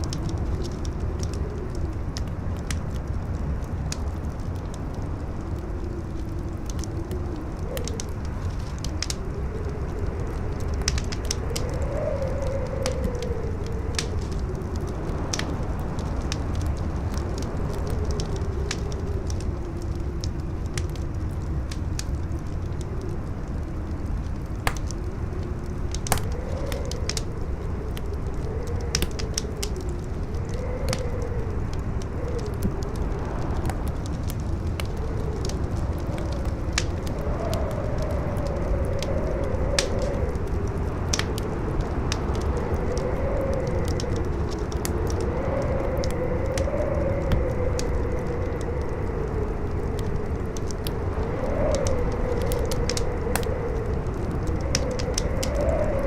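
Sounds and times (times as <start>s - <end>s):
wind howling: 0.0s - 56.0s
wood fire crackling and popping: 0.0s - 56.0s.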